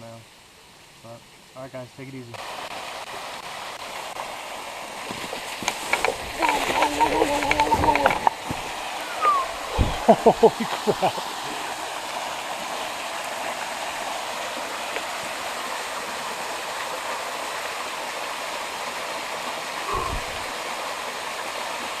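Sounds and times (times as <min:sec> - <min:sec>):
waterfall and stream rushing: 0:00.2 - 0:22.0.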